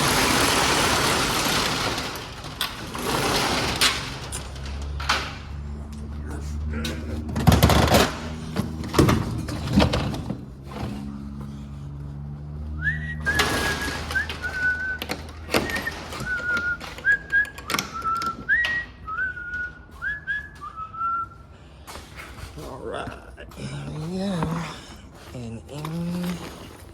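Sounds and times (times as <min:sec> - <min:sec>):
knocks and thunks: 0:07.2 - 0:11.1
man whistling a tune: 0:12.8 - 0:21.4.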